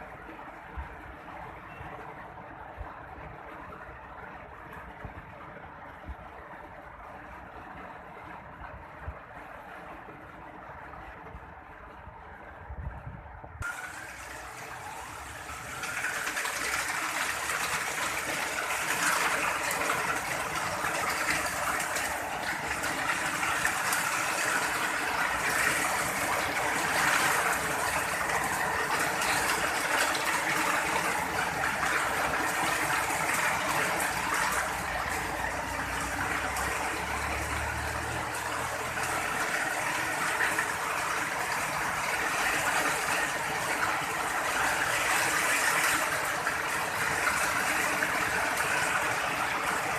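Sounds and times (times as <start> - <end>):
steady rain hiss: 13.6 - 49.9.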